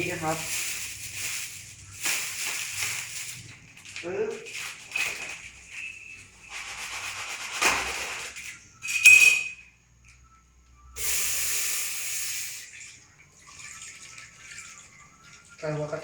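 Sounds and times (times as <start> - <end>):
plastic bag rustling: 0.0 - 8.6
liquid pouring hiss: 11.0 - 15.6.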